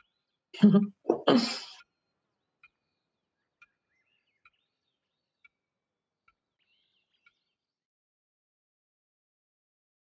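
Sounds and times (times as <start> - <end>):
faint bird chirps: 0.0 - 0.5, 1.7 - 7.8.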